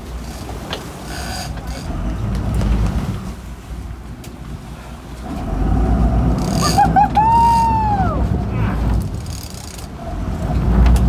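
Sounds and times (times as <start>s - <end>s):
boat engine rumble: 0.0s - 11.0s
wind buffeting microphone: 5.2s - 11.0s
high yelps and falling cry: 6.6s - 8.3s.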